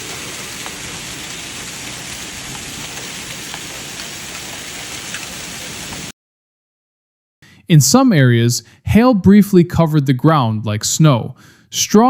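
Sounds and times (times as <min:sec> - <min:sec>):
hailstones ticking on hard surfaces: 0:00.0 - 0:06.1
heavy rain and hail hiss: 0:00.0 - 0:06.1.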